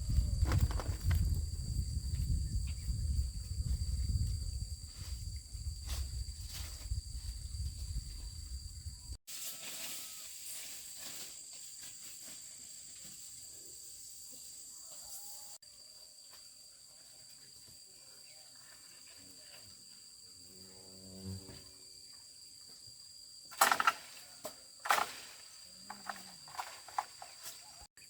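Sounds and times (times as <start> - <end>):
low rumble of wind on microphone: 0.0 - 9.2
insect chorus: 0.0 - 28.0.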